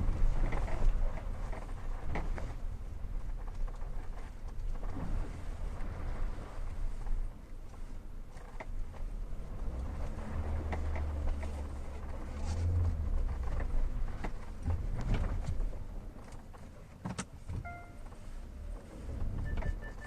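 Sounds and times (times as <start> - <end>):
car driving low rumble: 0.0 - 20.0
car body knocks and creaks: 10.6 - 17.7.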